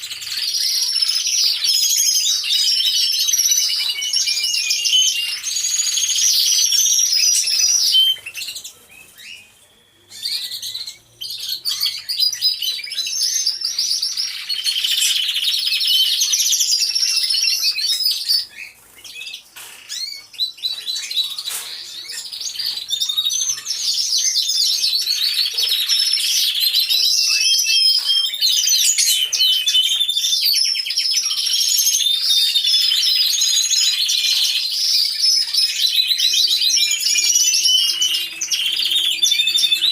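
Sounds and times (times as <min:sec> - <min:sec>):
canaries singing: 0:00.0 - 0:39.9.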